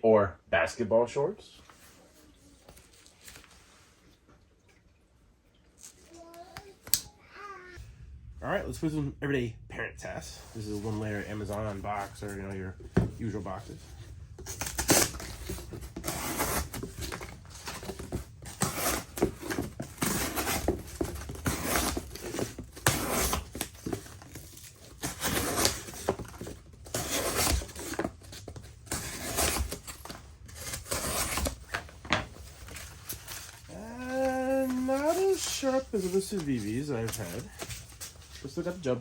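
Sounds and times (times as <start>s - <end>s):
knife slicing cardboard: 14.5s - 31.8s.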